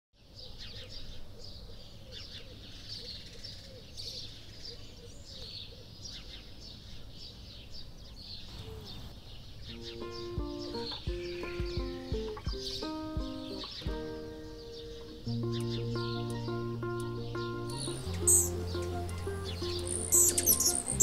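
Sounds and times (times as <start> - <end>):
birds chirping in chorus: 0.2 - 21.0
music: 9.7 - 21.0
repeated low bird note: 9.8 - 21.0.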